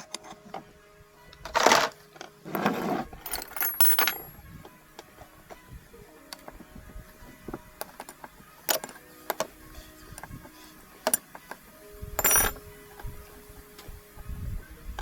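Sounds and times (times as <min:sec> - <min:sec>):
metal parts scraping: 0:01.4 - 0:04.4, 0:12.2 - 0:12.6
metallic clinks: 0:03.2 - 0:04.4, 0:12.2 - 0:12.6.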